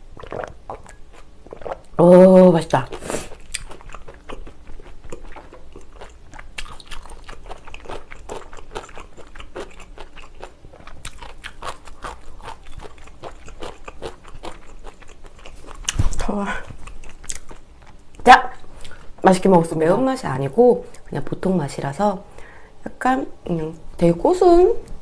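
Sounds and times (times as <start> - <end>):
wet chewing and crunching: 0.1 - 2.0, 2.7 - 18.2.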